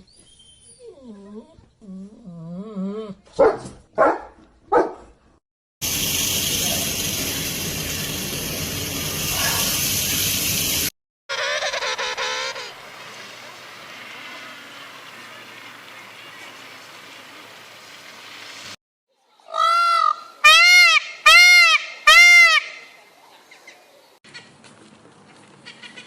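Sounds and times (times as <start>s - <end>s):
loud animal calls: 11.3s - 12.8s.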